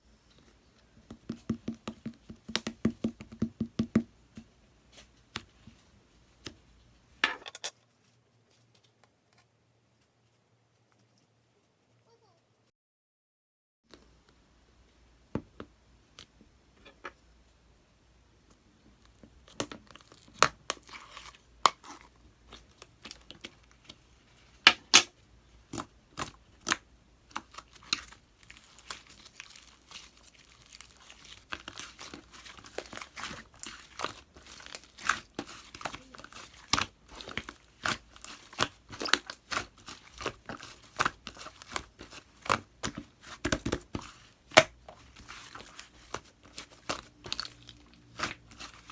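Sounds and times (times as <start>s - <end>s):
slime squished by hand: 25.7s - 48.9s.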